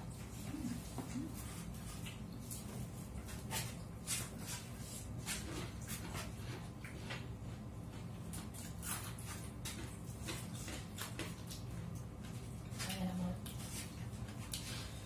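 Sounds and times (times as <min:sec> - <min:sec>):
person chewing: 0:07.9 - 0:12.5.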